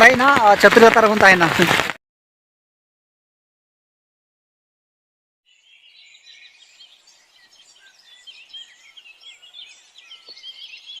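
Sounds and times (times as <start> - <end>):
small birds chirping: 5.5 - 11.0.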